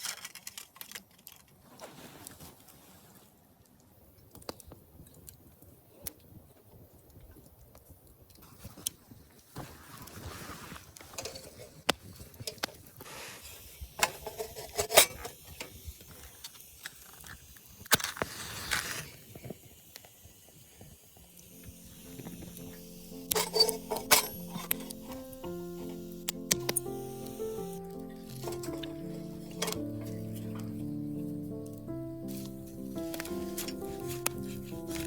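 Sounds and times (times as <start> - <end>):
rustling: 0.0 - 3.6, 8.4 - 15.4, 27.8 - 35.0.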